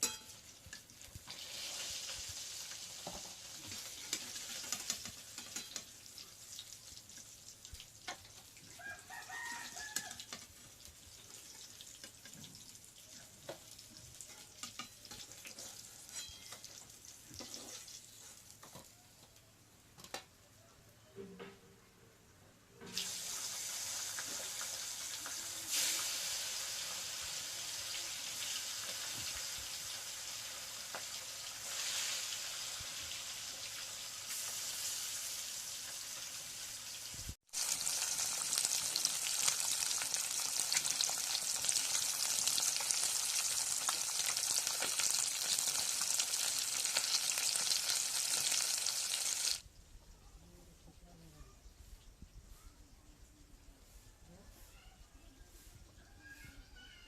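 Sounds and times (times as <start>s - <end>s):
fish sizzling in hot oil: 0.0s - 18.6s, 22.9s - 49.6s.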